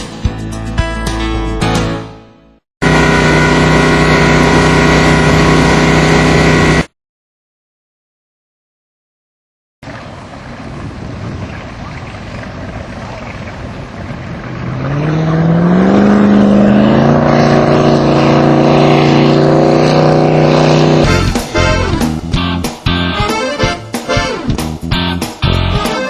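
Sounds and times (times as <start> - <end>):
boat engine revving: 2.8 - 6.9, 9.9 - 26.0.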